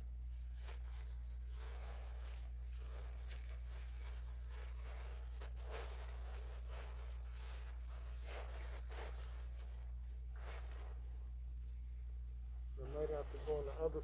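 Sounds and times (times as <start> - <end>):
duct insulation rustling and scraping: 0.0 - 11.8, 12.6 - 14.0
steady low hum: 0.0 - 14.0.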